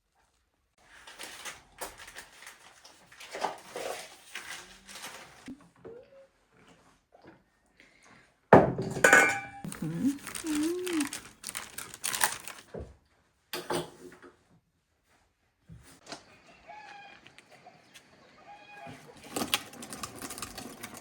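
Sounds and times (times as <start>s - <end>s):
dishes clinking: 8.9s - 9.7s.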